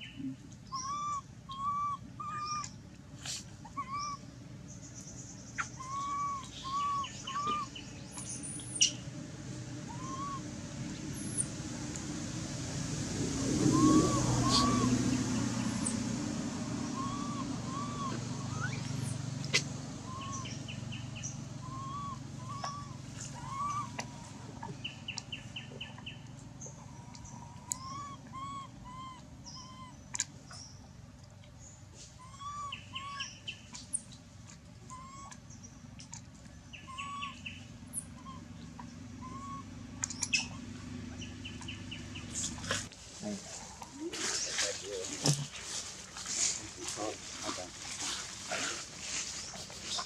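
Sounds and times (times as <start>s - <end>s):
birds whistling: 0.0s - 2.7s, 3.8s - 4.2s, 5.0s - 9.1s, 9.8s - 10.4s, 13.6s - 16.1s, 16.7s - 19.2s, 20.0s - 30.8s, 32.2s - 33.8s, 34.9s - 35.7s, 36.7s - 42.8s
low steady hum: 0.0s - 50.0s
chirping trills: 4.9s - 9.1s, 13.7s - 19.2s, 20.0s - 30.6s, 36.7s - 42.6s.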